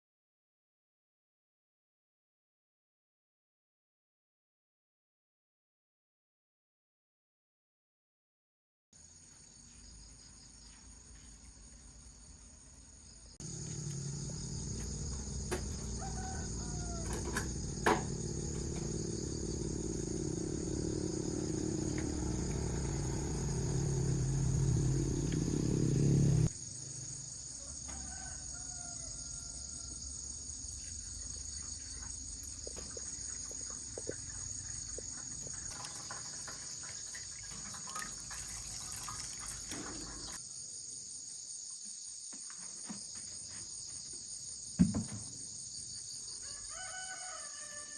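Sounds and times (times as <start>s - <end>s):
high-pitched insect chorus: 9.1s - 47.9s
low rumble: 13.4s - 26.5s.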